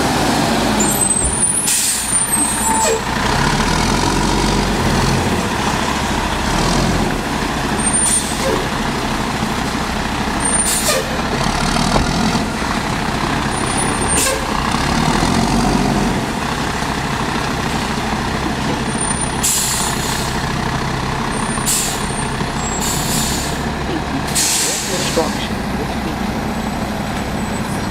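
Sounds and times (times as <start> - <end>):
garbage truck diesel engine: 0.0 - 27.9
air brake hissing: 1.5 - 3.0, 10.5 - 11.2, 19.4 - 20.4, 21.6 - 23.6, 24.3 - 25.4.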